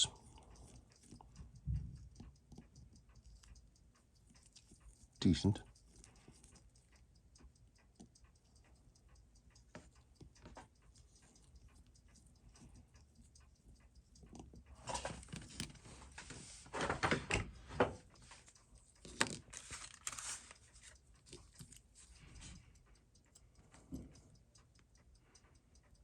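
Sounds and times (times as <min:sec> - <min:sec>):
small clicks and taps: 0:00.0 - 0:26.0
rustling and scraping: 0:14.8 - 0:18.5, 0:19.1 - 0:21.8.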